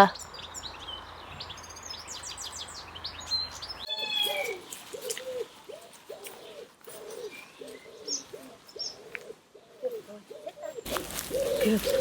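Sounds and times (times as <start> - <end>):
small birds chirping: 0.0 - 12.0
pigeons cooing: 3.9 - 12.0.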